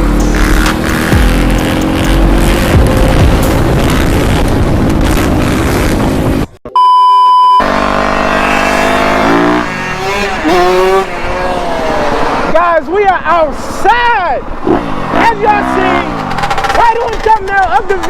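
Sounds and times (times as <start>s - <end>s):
dirt bike engine running: 0.0s - 6.5s, 7.6s - 13.5s, 14.6s - 18.0s
loud engine and rushing: 0.0s - 6.6s, 7.6s - 17.6s
electronic beep tone: 6.7s - 7.8s.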